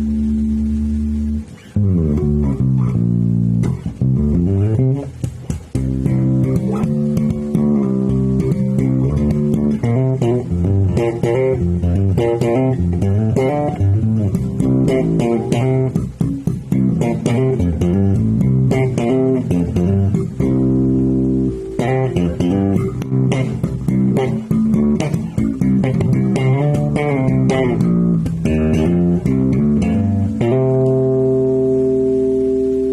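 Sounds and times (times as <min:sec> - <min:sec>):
electric bass guitar notes: 0:00.0 - 0:32.9.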